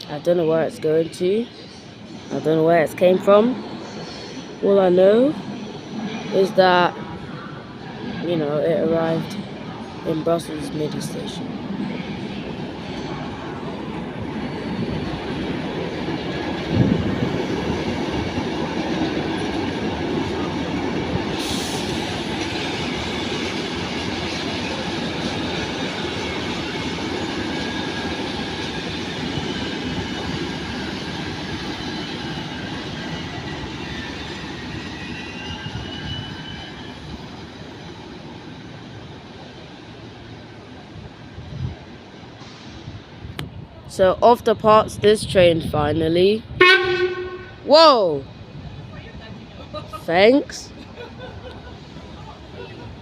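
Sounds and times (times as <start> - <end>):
train rumbling: 0.0 - 53.0
wheels squealing on rails: 14.3 - 40.7.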